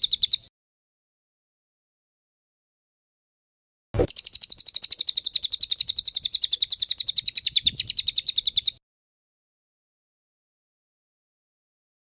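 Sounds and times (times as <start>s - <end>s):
songbird rapid trill: 0.0s - 0.5s, 4.0s - 8.8s.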